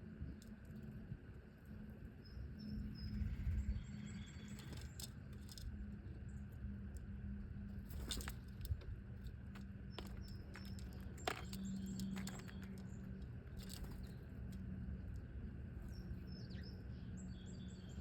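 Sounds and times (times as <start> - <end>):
steady low hum: 0.0 - 18.0
small birds chirping: 1.7 - 6.7, 9.2 - 18.0.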